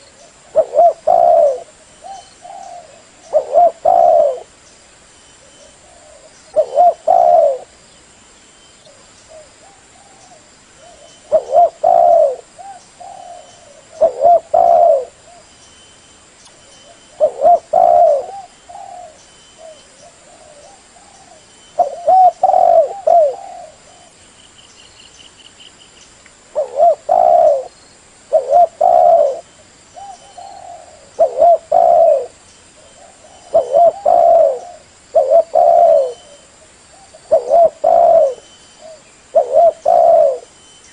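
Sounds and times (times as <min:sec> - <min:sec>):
dove cooing: 0:00.0 - 0:04.5, 0:05.4 - 0:07.8, 0:08.9 - 0:15.5, 0:16.8 - 0:24.2, 0:26.5 - 0:40.5.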